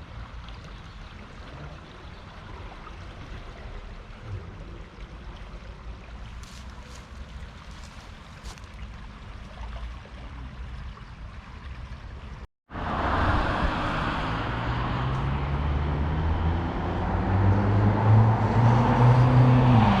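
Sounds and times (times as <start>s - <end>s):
low rumble: 12.7s - 18.0s
engine drone with rushing noise: 12.7s - 20.0s.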